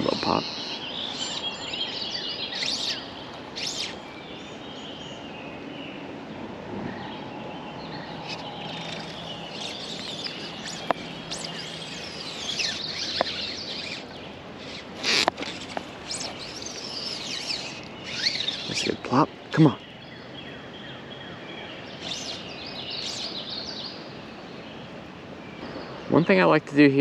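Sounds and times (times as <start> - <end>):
outdoor background noise: 0.0 - 27.0
songbirds chirping: 0.0 - 27.0
sharp ticks: 8.2 - 19.0.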